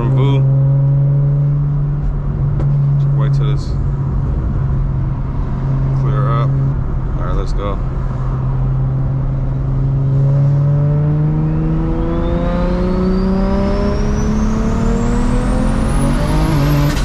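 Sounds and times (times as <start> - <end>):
car engine at full throttle: 0.0 - 17.0
turbo whine: 9.4 - 17.0.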